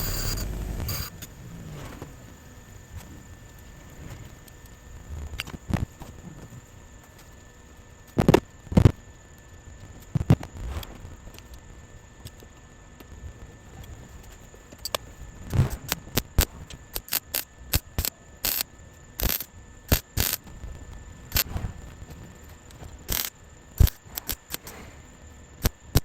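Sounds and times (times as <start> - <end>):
welder arc crackling: 0.0 - 10.6, 16.2 - 20.5, 22.4 - 24.7
faint steady hum: 0.0 - 26.0.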